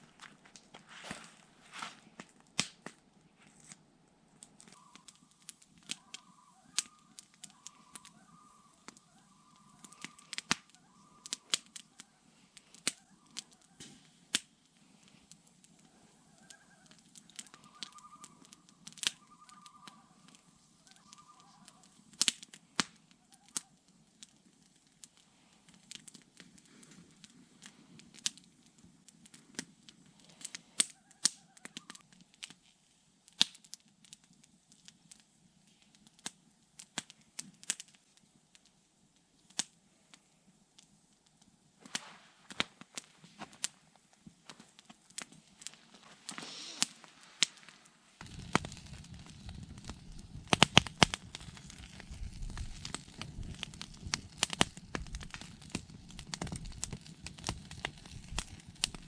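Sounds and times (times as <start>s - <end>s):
sharp crackles and pops: 0.0s - 59.0s
faint warbling call: 4.8s - 5.3s, 5.9s - 12.1s, 16.2s - 21.8s.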